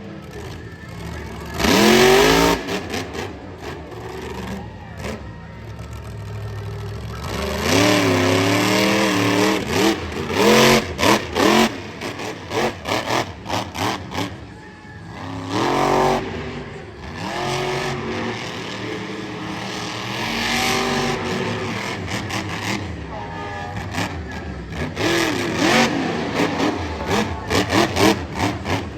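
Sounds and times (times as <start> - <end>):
monster truck engine revving: 0.0 - 28.9.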